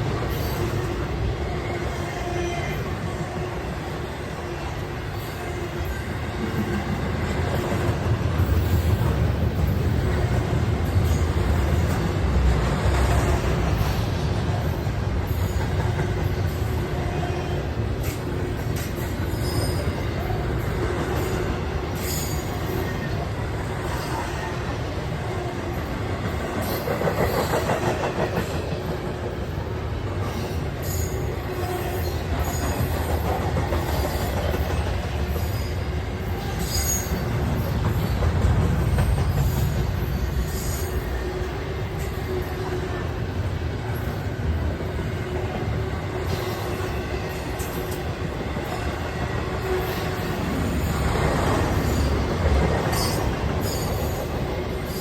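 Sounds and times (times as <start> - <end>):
train wheels rumbling on rails: 0.0 - 55.0
high-pitched wheel squeals: 19.2 - 20.3.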